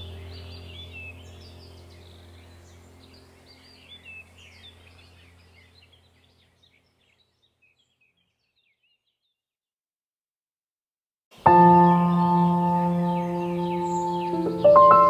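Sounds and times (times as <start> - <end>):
low droning tone: 0.0 - 6.1
songbirds chirping and whistling: 0.0 - 9.4, 11.4 - 15.0.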